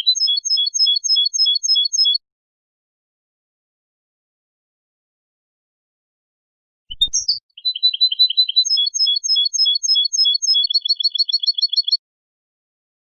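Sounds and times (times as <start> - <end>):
songbird singing: 0.0 - 2.2, 6.9 - 12.0.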